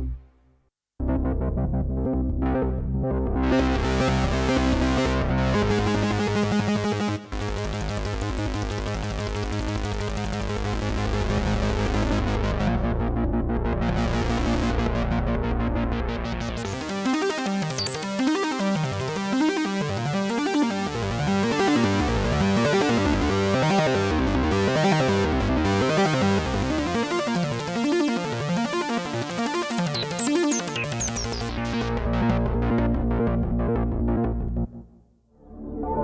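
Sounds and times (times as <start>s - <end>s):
deep synthesizer bass note: 1.0s - 17.0s, 20.8s - 28.4s, 30.8s - 36.0s
synthesizer sweeping up and down: 1.0s - 34.8s.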